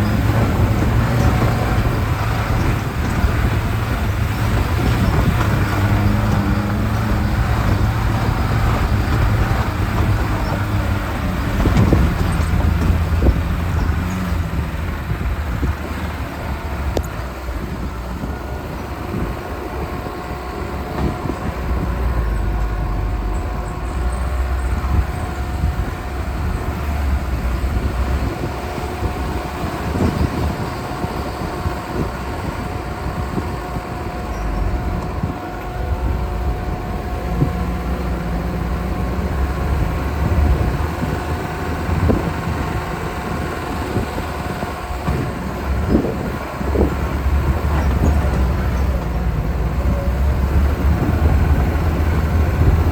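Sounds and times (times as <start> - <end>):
knocks and rattles: 0.0 - 17.3
car engine running: 0.0 - 52.9.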